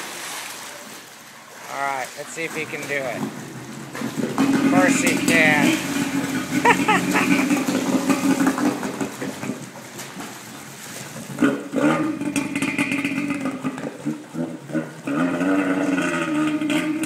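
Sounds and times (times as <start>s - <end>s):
jet ski engine running: 2.0s - 17.0s.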